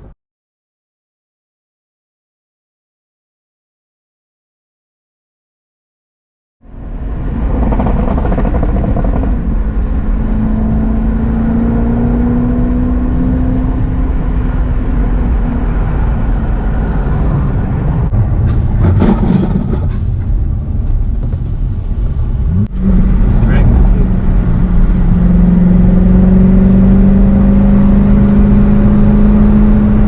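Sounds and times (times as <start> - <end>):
car engine hum: 6.6 - 30.0
road rumble: 6.6 - 30.0.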